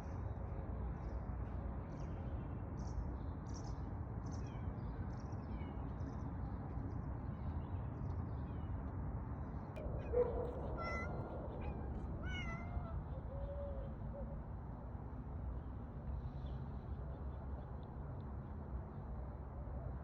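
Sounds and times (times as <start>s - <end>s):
low background rumble: 9.7s - 14.1s.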